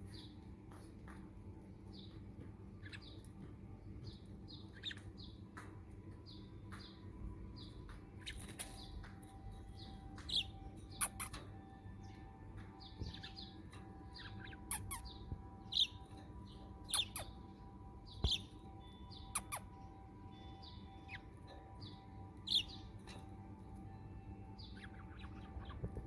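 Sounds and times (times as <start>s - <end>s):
budgerigar chirps and squawks: 10.3s - 11.5s, 14.2s - 15.9s, 16.9s - 17.4s, 19.3s - 19.8s.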